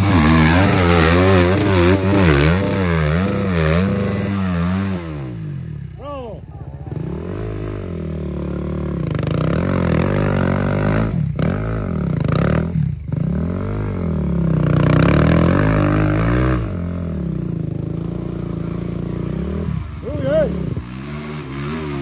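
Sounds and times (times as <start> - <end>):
motocross engines revving: 0.0 - 22.0.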